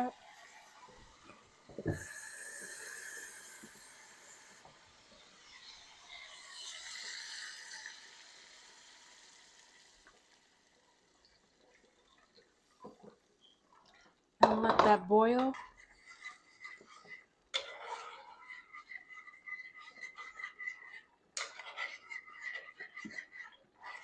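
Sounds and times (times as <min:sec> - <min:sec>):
water running into a pot: 0:00.0 - 0:14.9.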